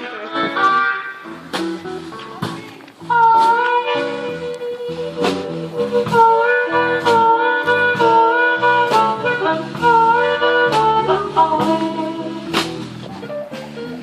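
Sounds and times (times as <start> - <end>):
bass: 0.0 - 14.0
guitar: 0.0 - 14.0
wind instrument solo: 0.0 - 14.0
drum and cymbal hits: 0.6 - 14.0.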